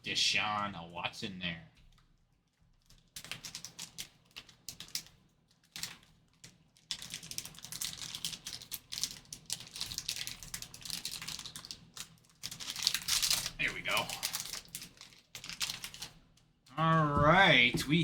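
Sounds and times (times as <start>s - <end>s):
wrapper crinkling and tearing: 5.8s - 16.2s.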